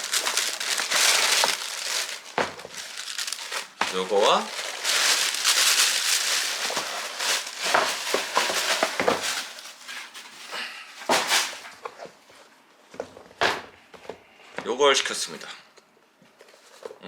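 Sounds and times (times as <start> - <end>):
paper and shoebox rustling: 0.0 - 11.8.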